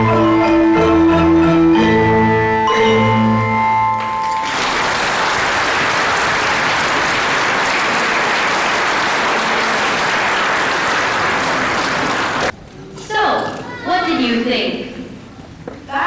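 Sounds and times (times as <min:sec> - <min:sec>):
mallet percussion notes: 0:00.0 - 0:05.1
audience applauding: 0:04.0 - 0:12.5.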